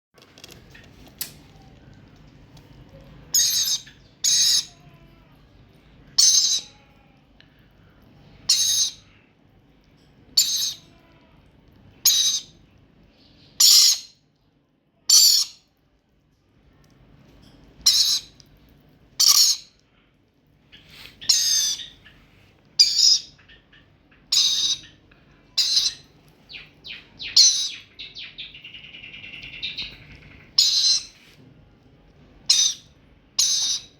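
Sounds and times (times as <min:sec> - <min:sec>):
parrot high-pitched calls: 0:03.3 - 0:05.1, 0:06.2 - 0:06.9, 0:08.5 - 0:09.1, 0:10.4 - 0:11.0, 0:12.0 - 0:12.6, 0:13.5 - 0:14.2, 0:15.1 - 0:15.7, 0:17.8 - 0:18.4, 0:19.2 - 0:19.8, 0:21.2 - 0:22.2, 0:22.8 - 0:31.2, 0:32.4 - 0:33.9.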